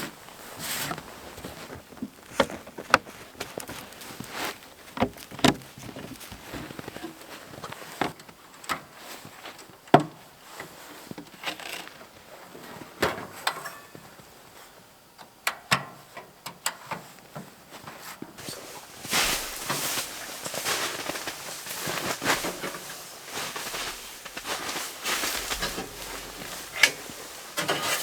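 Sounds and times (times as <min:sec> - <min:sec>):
rustling: 0:00.0 - 0:08.2, 0:18.1 - 0:28.0
camping gear knocking and clicking: 0:01.0 - 0:08.2, 0:18.4 - 0:28.0.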